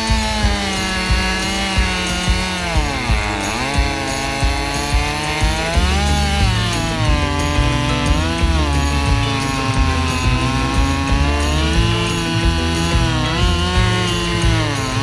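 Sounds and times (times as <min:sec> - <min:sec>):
chainsaw running at high revs: 0:00.0 - 0:15.0
music with steady beat: 0:00.0 - 0:15.0.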